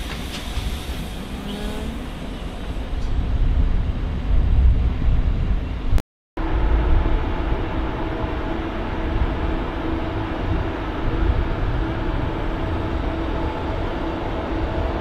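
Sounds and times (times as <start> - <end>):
train coaches rumbling: 0.0 - 15.0.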